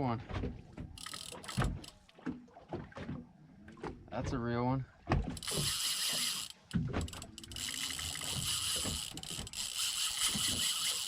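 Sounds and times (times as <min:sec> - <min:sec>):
fishing reel ratcheting: 0:01.0 - 0:02.0, 0:05.4 - 0:11.0.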